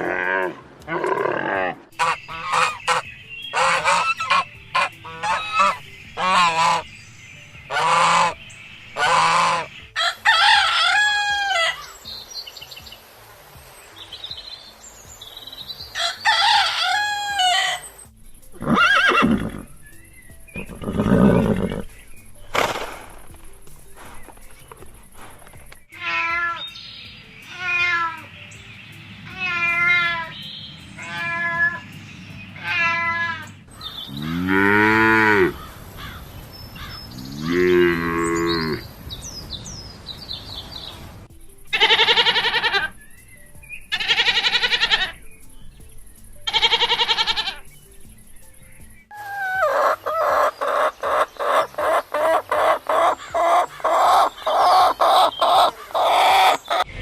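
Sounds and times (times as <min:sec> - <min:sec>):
loud bright animal calls: 0:49.1 - 0:56.8.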